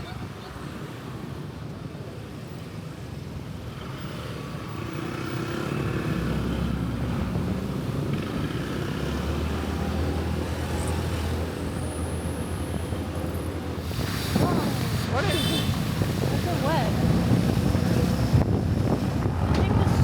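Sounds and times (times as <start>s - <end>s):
vehicle engine on road: 0.5s - 20.0s.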